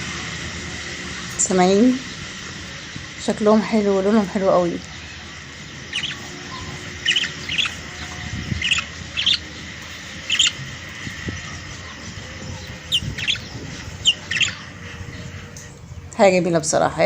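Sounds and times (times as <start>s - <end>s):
young canaries chirping: 1.5s - 16.6s.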